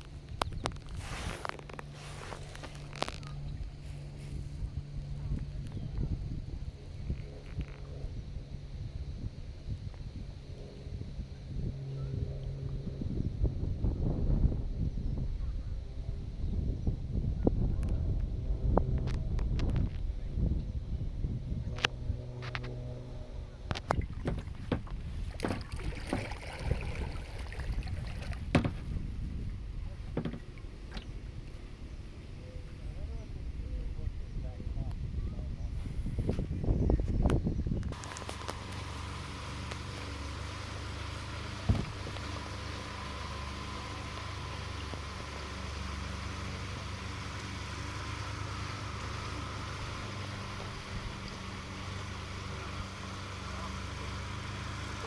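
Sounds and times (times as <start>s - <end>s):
boat motor running: 0.0s - 55.0s
wind and water rumble: 0.0s - 55.0s
knocks against boat hull: 23.9s - 26.4s, 28.3s - 29.0s, 30.1s - 31.1s, 41.6s - 42.4s
water splash: 23.9s - 28.8s, 38.0s - 52.8s.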